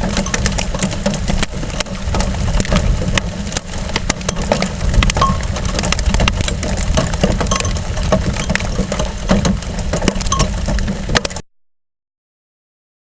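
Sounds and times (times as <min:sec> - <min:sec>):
low rumble: 0:00.0 - 0:10.9
hail hitting camera: 0:00.0 - 0:11.4.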